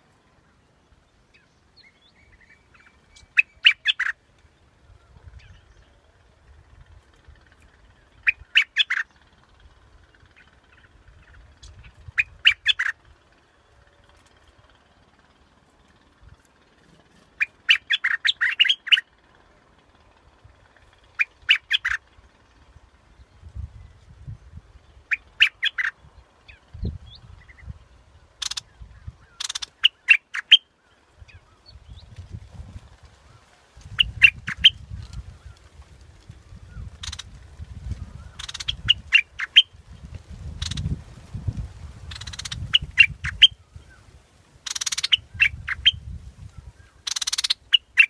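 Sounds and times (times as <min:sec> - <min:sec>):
bulbul calling: 0:01.3 - 0:04.2, 0:07.3 - 0:13.2, 0:16.2 - 0:19.1, 0:20.8 - 0:22.2, 0:25.0 - 0:27.7, 0:28.3 - 0:32.1, 0:33.9 - 0:35.6, 0:36.7 - 0:37.4, 0:38.1 - 0:39.8, 0:40.4 - 0:41.0, 0:42.1 - 0:44.0, 0:44.6 - 0:48.0.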